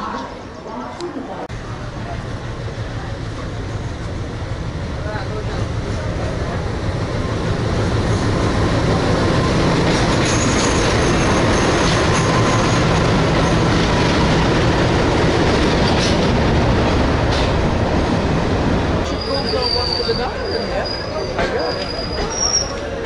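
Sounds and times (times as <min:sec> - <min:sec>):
train rumbling on rails: 0:01.4 - 0:23.0
metallic wheel squeal: 0:19.1 - 0:22.9.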